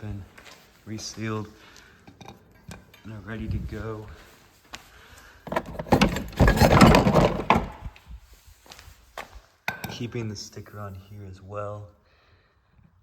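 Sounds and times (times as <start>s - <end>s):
motorcycle parts clattering: 2.0s - 3.9s, 5.4s - 8.0s
scattered clicks and knocks: 5.5s - 7.8s.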